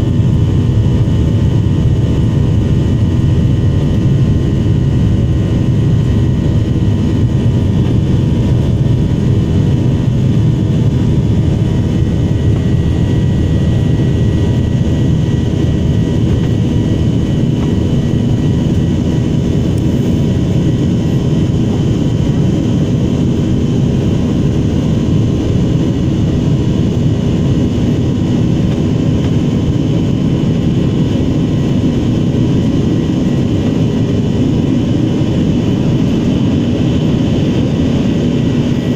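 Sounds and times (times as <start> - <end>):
airliner cabin engine rumble: 0.0 - 38.9.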